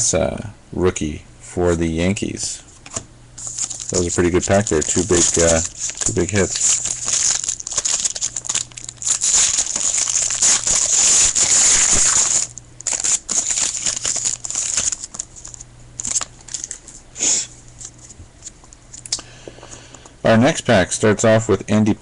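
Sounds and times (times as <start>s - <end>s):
foil wrapper crinkling: 3.4s - 18.8s.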